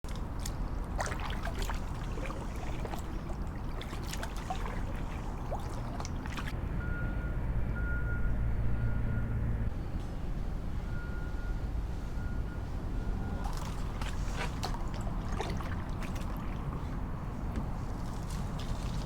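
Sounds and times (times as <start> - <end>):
water trickling and dripping: 0.1 - 6.5, 13.4 - 17.0.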